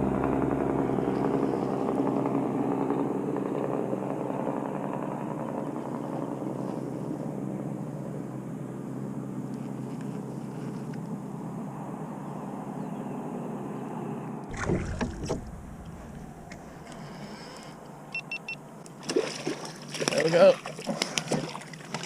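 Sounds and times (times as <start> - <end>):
canoe on water: 0.0 - 11.3, 14.4 - 22.0
faint hum: 14.4 - 18.9
water splashes: 14.5 - 17.7, 18.9 - 22.0.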